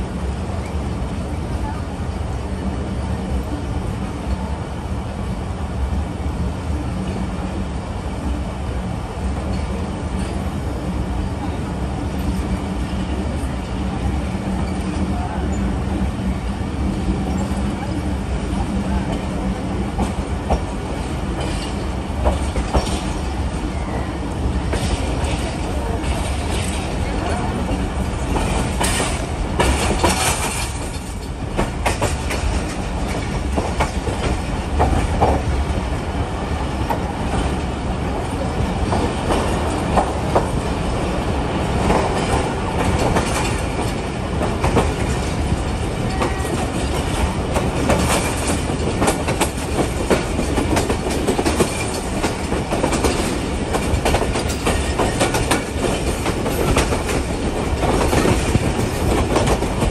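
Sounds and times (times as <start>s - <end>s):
train rumble: 0.0s - 59.9s
train wheels clacking over joints: 18.5s - 35.9s, 36.7s - 59.9s.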